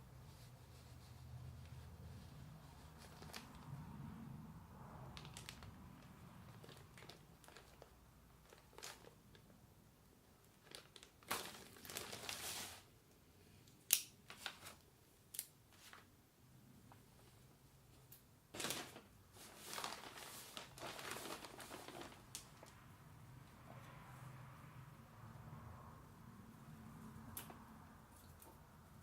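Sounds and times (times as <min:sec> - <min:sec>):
rustling scrape: 0:11.9 - 0:12.9, 0:18.6 - 0:22.4.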